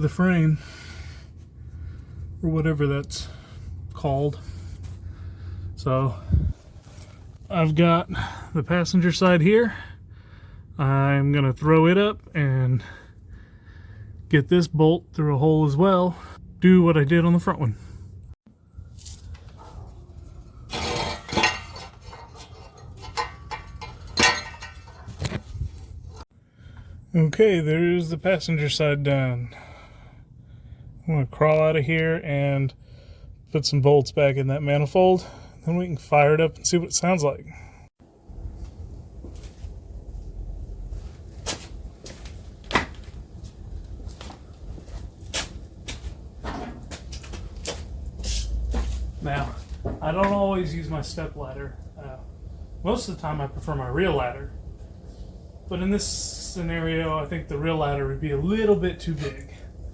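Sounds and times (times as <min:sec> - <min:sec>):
metal clinking and rattling: 0:20.3 - 0:25.4.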